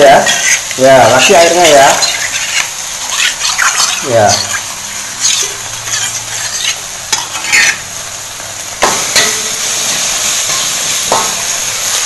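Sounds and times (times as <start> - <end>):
spatula scraping pan: 0.0 - 7.8
spice paste sizzling in oil: 0.0 - 12.0.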